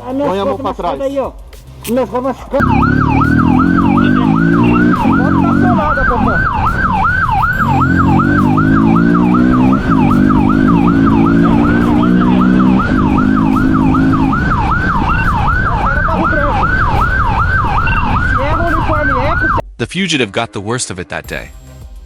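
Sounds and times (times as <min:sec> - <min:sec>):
engine accelerating: 0:02.6 - 0:17.4
police siren yelping: 0:02.6 - 0:19.6.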